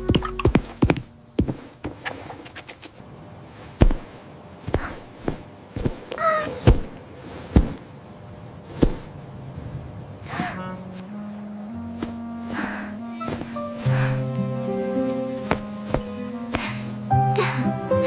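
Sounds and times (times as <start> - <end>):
sharp thuds and knocks: 3.8 - 7.9, 8.7 - 9.2, 15.4 - 16.8.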